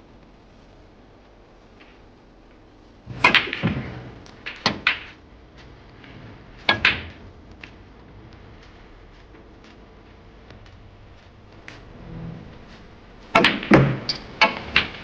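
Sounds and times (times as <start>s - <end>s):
cue tip striking ball: 3.1s - 7.8s, 11.5s - 15.0s
snooker balls clacking: 3.1s - 15.0s.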